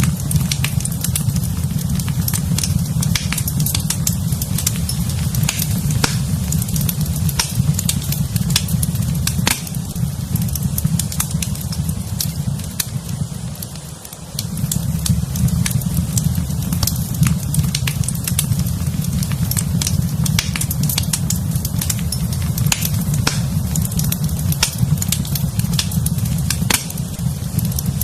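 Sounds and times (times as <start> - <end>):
low rumble of flames: 0.0 - 28.0
wood fire crackling and popping: 0.0 - 28.0.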